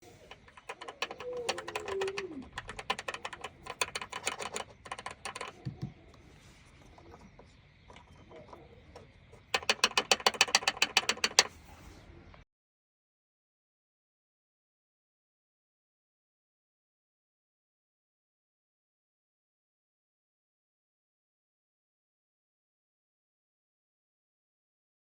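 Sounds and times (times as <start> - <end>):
plastic trim rattling: 0.0 - 5.9, 9.4 - 11.5.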